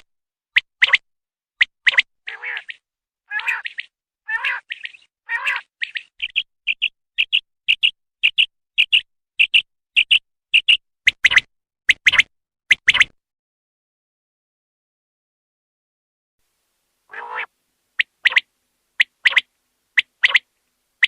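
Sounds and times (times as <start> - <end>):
quail calling: 2.3 - 10.7, 17.1 - 20.5.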